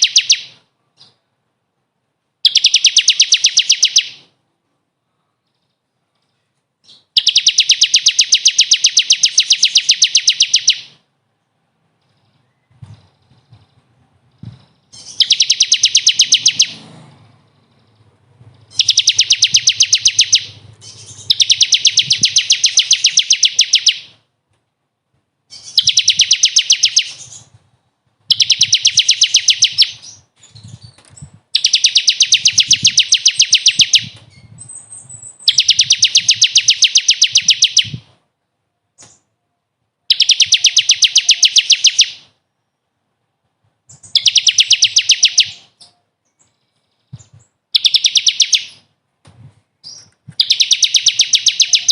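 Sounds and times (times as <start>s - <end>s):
songbird trilling: 0.0s - 1.2s, 2.4s - 4.2s, 6.8s - 11.0s, 12.0s - 16.8s, 17.6s - 24.2s, 25.5s - 27.6s, 28.3s - 38.0s, 40.1s - 42.3s, 43.9s - 48.9s, 49.8s - 51.9s.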